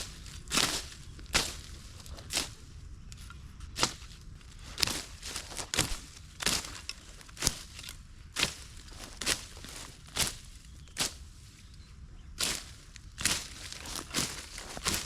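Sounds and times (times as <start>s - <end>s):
leaves and twigs crunching: 0.0s - 15.0s.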